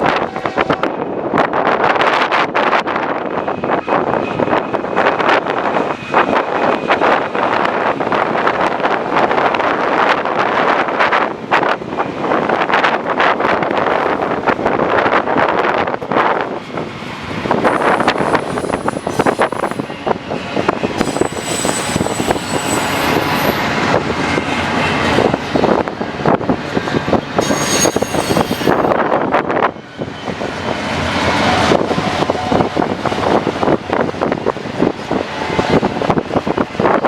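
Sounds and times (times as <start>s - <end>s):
train passing: 0.0s - 37.0s
wind buffeting microphone: 0.0s - 37.0s
thin high-pitched tones: 27.4s - 29.0s.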